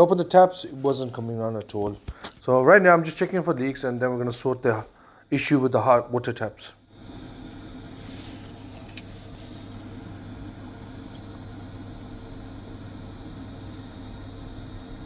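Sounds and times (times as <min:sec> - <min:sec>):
boiler humming: 0:00.0 - 0:15.0.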